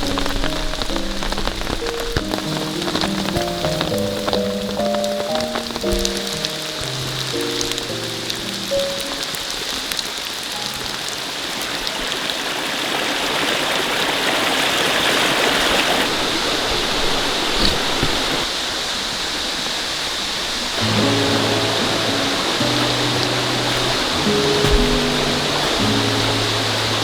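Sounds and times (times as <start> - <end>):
sharp drip-like knocks: 0.0 - 10.9, 20.8 - 27.0
steady rain: 0.0 - 27.0.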